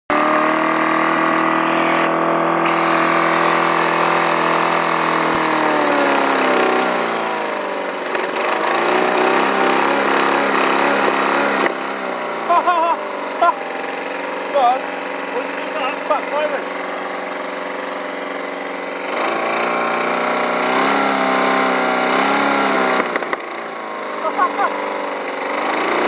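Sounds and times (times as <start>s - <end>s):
lawn mower engine running: 0.1s - 26.0s.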